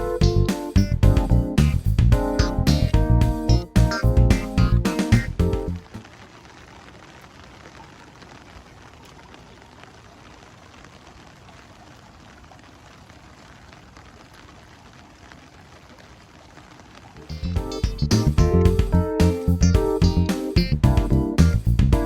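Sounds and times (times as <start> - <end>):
background music: 0.0 - 5.9, 17.3 - 22.0
steady rain falling: 0.0 - 22.0.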